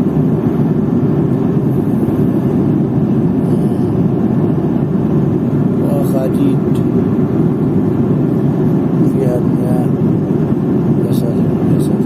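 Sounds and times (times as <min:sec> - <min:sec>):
airliner cabin engine drone: 0:00.0 - 0:12.0.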